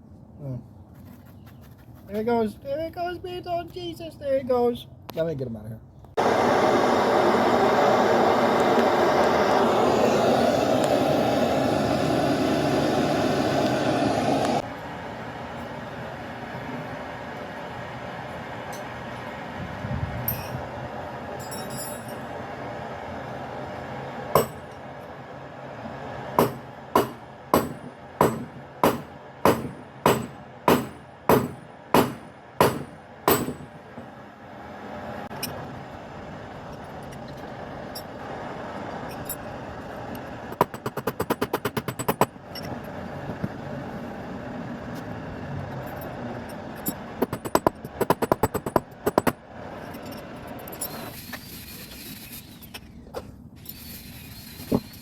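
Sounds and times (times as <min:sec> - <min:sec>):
hammer striking metal anvil: 0:24.4 - 0:24.7, 0:26.4 - 0:33.7.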